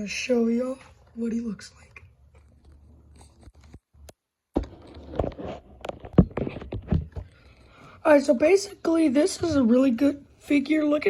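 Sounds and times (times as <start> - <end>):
handling scrapes and taps: 2.4 - 7.5.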